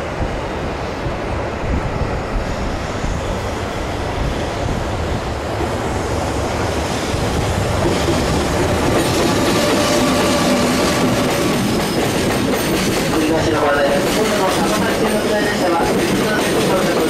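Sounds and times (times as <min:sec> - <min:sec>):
freight train wheels rumbling on rail: 0:00.0 - 0:17.0.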